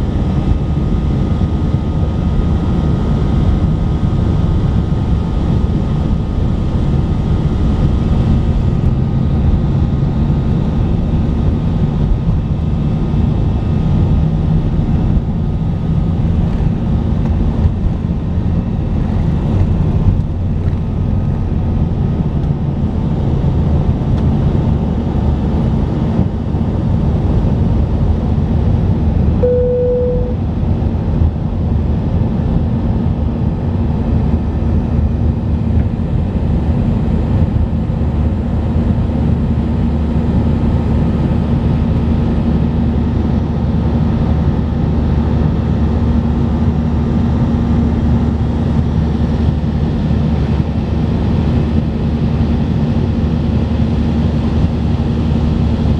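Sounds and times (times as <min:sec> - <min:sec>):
airplane cabin engine noise: 0:00.0 - 0:55.9
single tone: 0:29.4 - 0:30.5.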